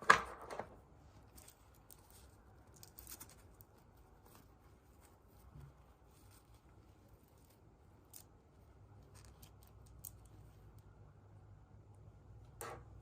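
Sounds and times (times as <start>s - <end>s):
wrappers rustling and clicking: 1.0s - 10.8s.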